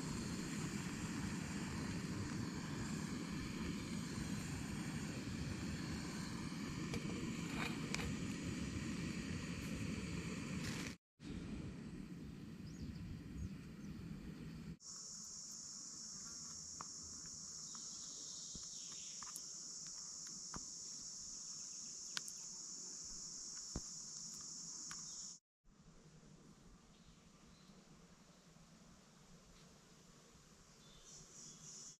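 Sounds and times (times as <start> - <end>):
insects trilling: 0.0 - 10.9, 14.8 - 25.4, 30.3 - 31.9.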